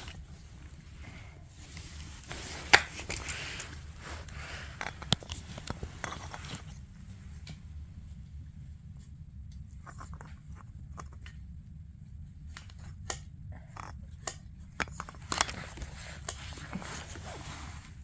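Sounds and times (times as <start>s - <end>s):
scraping or rustling: 0.0s - 7.4s, 15.0s - 18.0s
low steady hum: 0.0s - 18.0s.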